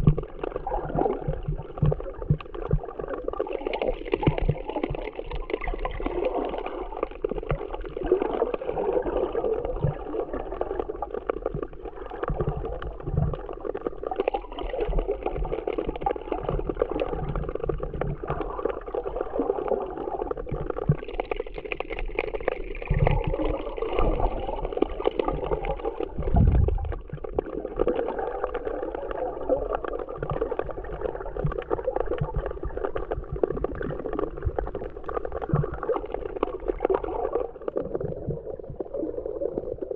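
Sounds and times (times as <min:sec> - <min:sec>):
muffled underwater water sloshing: 0:00.0 - 0:39.9
low underwater thumps: 0:25.4 - 0:27.5.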